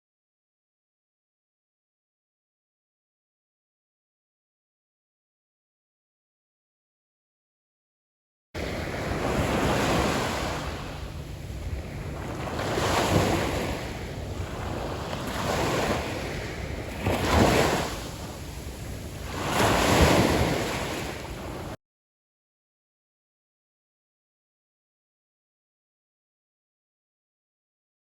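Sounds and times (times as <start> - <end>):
wind buffeting microphone: 8.6 - 21.8.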